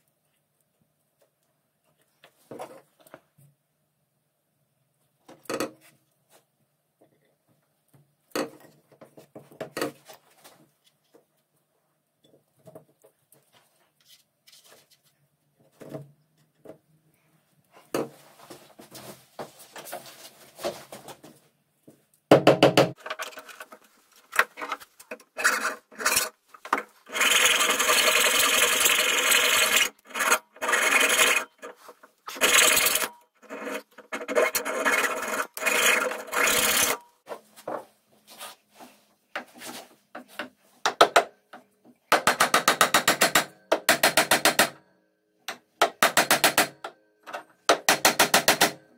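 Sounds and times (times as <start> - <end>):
hand file rubbing on wood: 27.0 - 37.0.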